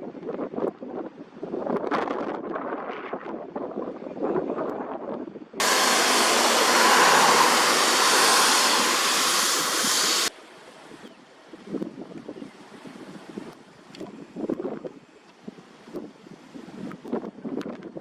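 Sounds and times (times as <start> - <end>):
wind blasting microphone: 5.6 - 10.3.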